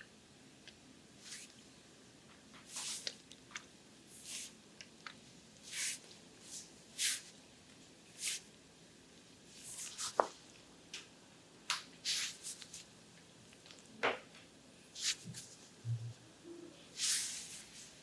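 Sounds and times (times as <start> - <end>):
hands sliding over oiled skin: 5.6 - 7.3.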